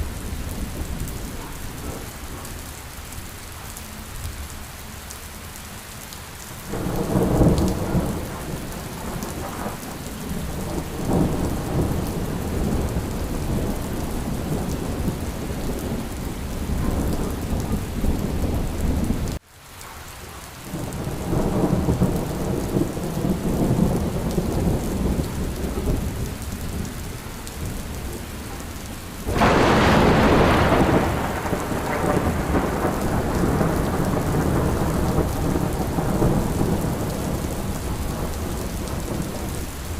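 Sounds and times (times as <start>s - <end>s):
thunder rumbling: 0.0s - 2.7s, 6.7s - 19.4s, 20.7s - 39.9s
steady rain: 0.0s - 39.9s
sharp thunderclap: 29.3s - 39.5s.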